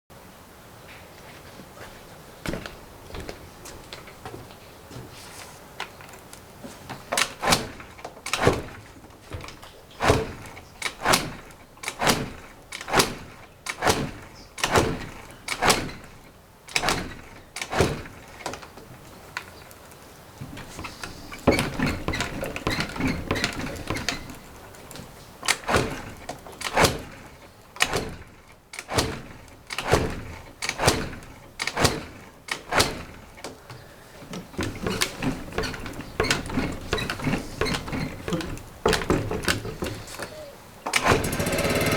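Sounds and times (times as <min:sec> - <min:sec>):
scooter engine failing to start: 0:07.0 - 0:18.7, 0:20.6 - 0:24.6, 0:25.5 - 0:41.9.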